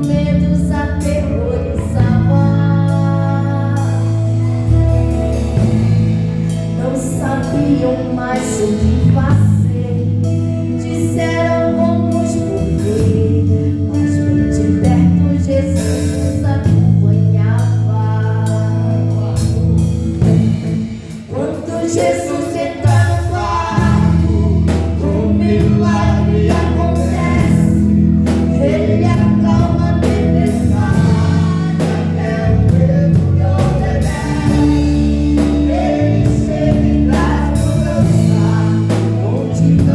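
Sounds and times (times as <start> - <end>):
woman singing: 0.0 - 4.8, 6.7 - 19.6, 21.1 - 39.9
bass and keyboard chords: 0.0 - 39.9
steady drum beat: 4.3 - 7.7, 19.4 - 39.9.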